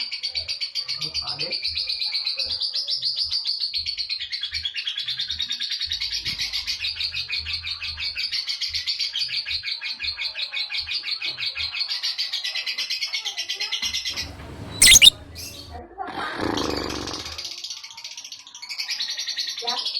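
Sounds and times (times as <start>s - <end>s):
lovebird chattering: 14.7s - 15.6s.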